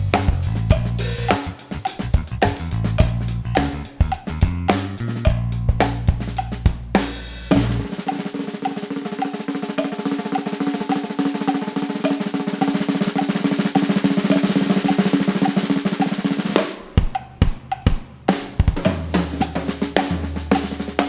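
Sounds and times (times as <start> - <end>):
bass drum and snare hits: 0.0 - 7.9, 16.8 - 20.8
snare drum roll: 0.0 - 21.0.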